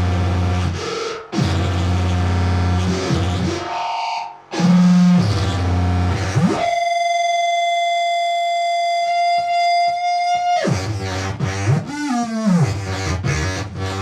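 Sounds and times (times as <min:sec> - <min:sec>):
buzzy feedback tone: 0:00.0 - 0:14.0
pulsing electronic beats: 0:00.1 - 0:06.9.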